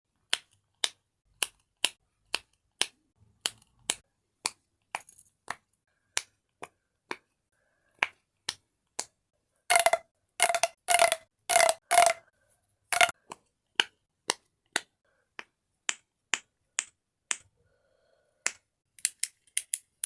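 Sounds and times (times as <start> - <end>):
fidget toy clicking: 9.7 - 12.2.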